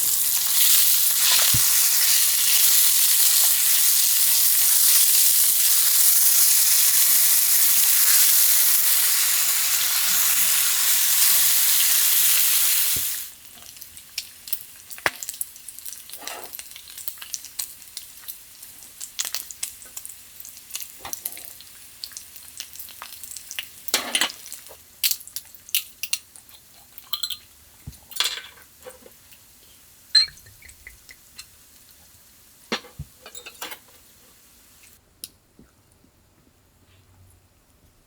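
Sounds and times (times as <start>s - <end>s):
food sizzling in a hot pan: 0.0s - 27.6s
utensil clinking against cookware: 32.7s - 33.9s.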